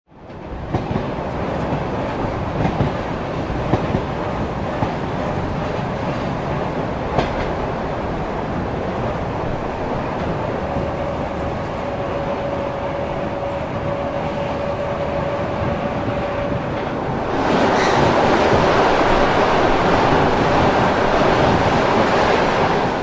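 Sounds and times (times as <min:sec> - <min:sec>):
train rumble and rattle: 0:00.1 - 0:23.0
thin steady whine: 0:10.5 - 0:16.8.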